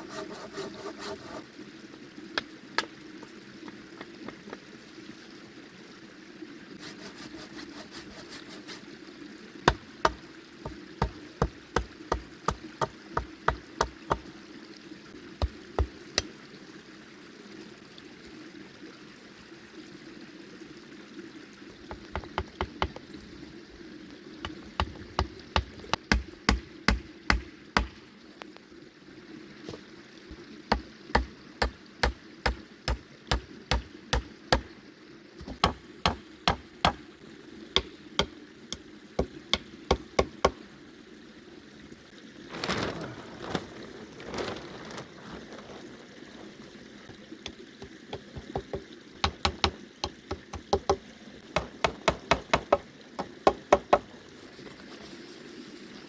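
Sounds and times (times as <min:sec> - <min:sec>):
rain rushing: 0:42.5 - 0:50.0.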